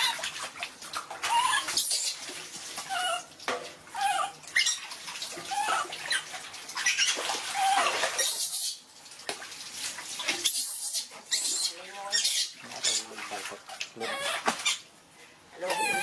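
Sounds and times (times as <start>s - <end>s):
water splashing: 0.0s - 15.0s
monkey squeaky calls: 1.3s - 2.2s, 4.0s - 4.9s, 5.6s - 8.8s, 10.4s - 13.0s, 14.0s - 14.8s, 15.7s - 16.0s.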